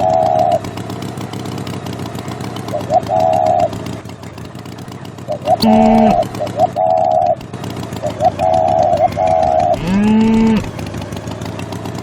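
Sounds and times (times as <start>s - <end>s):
bird call: 0.0s - 0.7s, 2.7s - 10.7s
engine rumbling: 0.0s - 12.0s.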